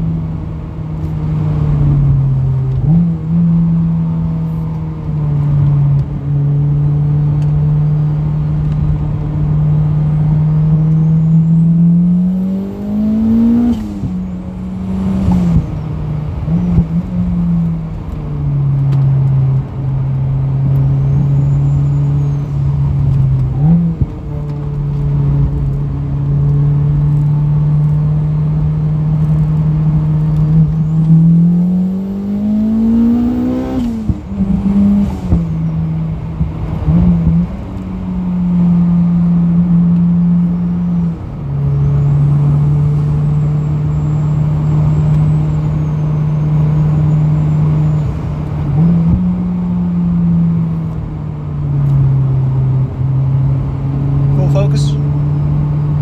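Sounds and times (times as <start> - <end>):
car engine under load: 0.0 - 56.0
vibration noise in car: 32.5 - 56.0.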